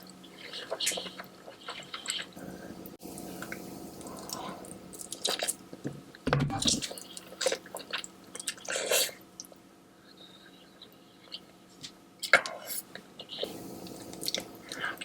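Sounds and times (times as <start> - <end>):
wet saucy eating sounds: 0.2 - 5.7, 6.7 - 9.6, 12.2 - 15.0.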